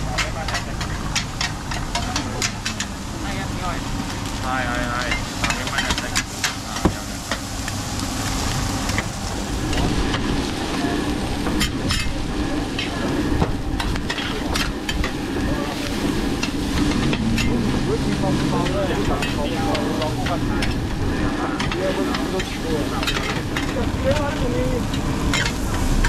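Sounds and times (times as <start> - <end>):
food sizzling in a wok: 0.0 - 26.0
metal spatulas clacking on pan: 0.1 - 2.9.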